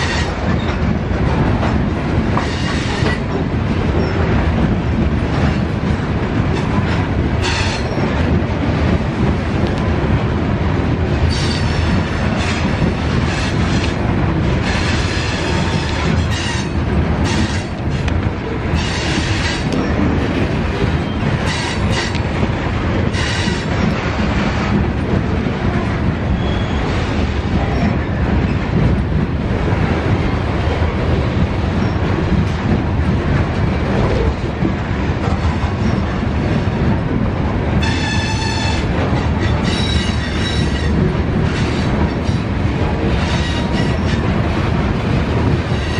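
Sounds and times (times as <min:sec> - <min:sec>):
train wheels clattering over rails: 0:00.0 - 0:45.9
high wheel squeal: 0:26.4 - 0:26.9.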